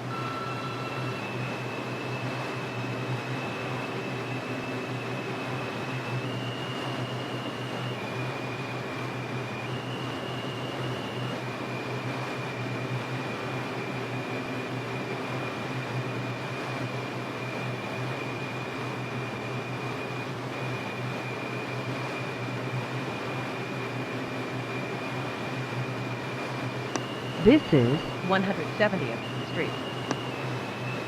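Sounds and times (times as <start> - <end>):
subway car rumble: 0.0 - 2.0
thin high whine: 0.0 - 4.4, 26.6 - 31.0
ventilation hum: 27.0 - 29.8.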